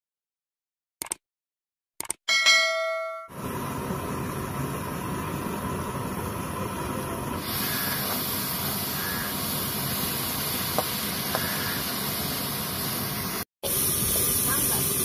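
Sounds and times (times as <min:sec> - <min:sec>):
cabbage sizzling in hot oil: 0:07.4 - 0:15.0.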